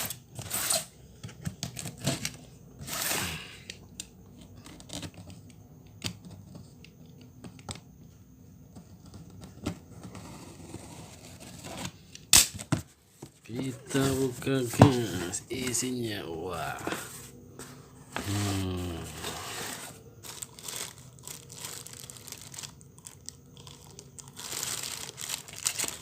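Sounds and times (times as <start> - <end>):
tape tearing: 0.0 - 0.9, 2.0 - 3.3, 24.3 - 26.0
cardboard packaging handling: 13.2 - 16.2, 16.8 - 26.0.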